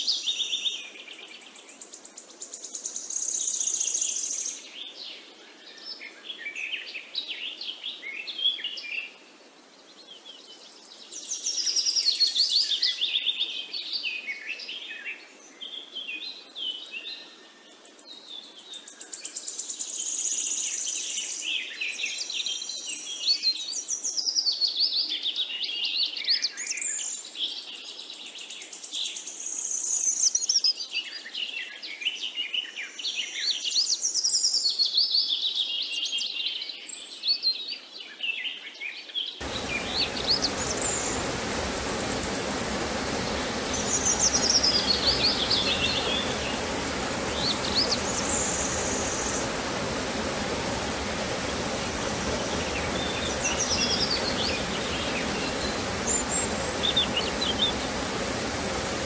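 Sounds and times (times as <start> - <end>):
faint steady hiss: 39.4 - 59.0
wild birds singing: 39.4 - 59.0.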